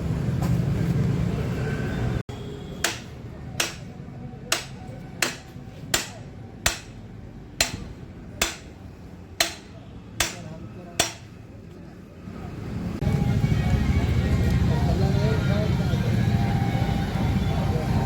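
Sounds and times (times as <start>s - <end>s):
hammer striking with ring: 2.8s - 11.4s.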